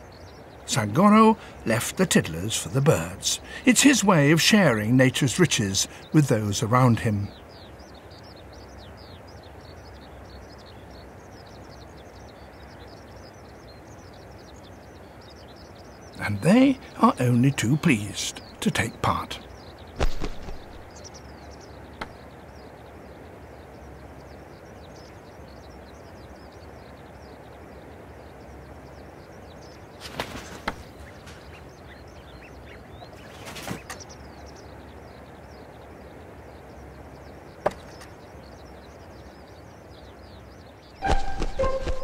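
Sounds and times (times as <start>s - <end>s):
outdoor hiss: 0.0s - 42.0s
small birds chirping: 0.0s - 42.0s
wing flaps: 19.9s - 20.9s, 30.0s - 31.6s, 33.2s - 34.0s, 41.0s - 42.0s.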